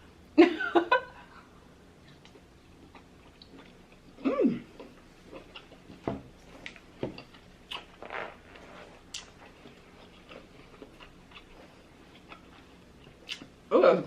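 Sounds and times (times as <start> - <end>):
person chewing food: 1.9 - 13.7.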